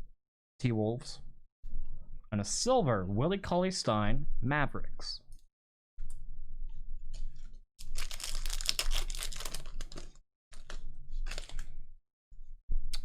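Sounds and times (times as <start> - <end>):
foil wrapper tearing and crinkling: 7.8 - 11.7.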